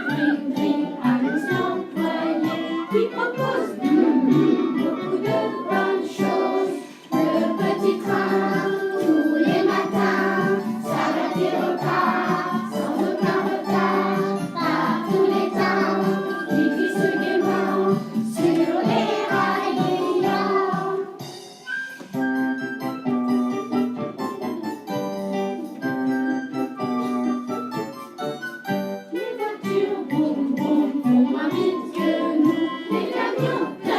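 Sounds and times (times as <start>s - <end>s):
group singing children's song: 0.0s - 21.3s, 29.1s - 33.9s
instrumental accompaniment: 0.0s - 33.9s.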